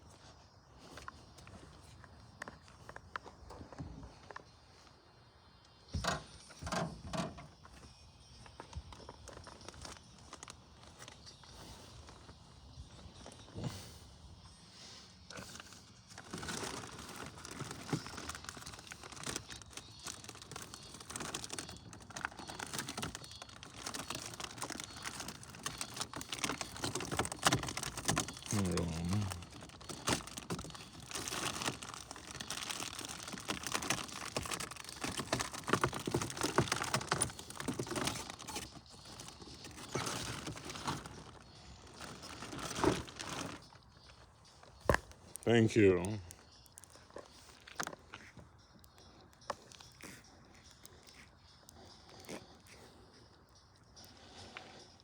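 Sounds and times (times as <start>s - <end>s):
footsteps crunching on loose ground: 15.4s - 53.0s.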